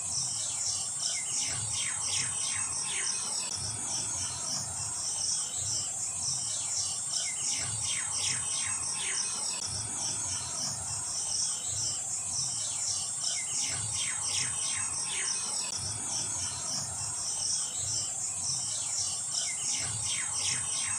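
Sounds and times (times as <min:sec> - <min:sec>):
insects chirping: 0:00.0 - 0:20.9.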